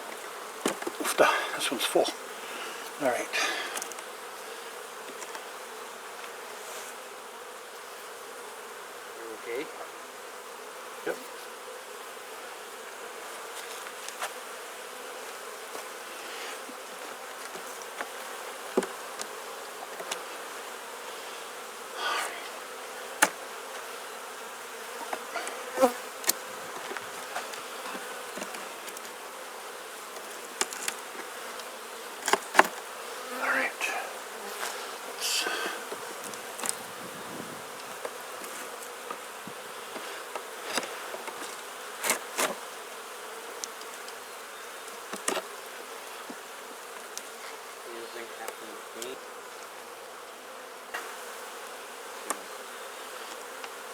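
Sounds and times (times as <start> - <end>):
honeybees buzzing: 0.0 - 53.9.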